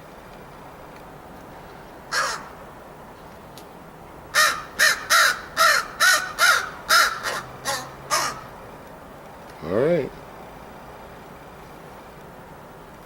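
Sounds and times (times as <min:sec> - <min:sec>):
crow cawing: 0:02.1 - 0:02.6, 0:04.4 - 0:08.5.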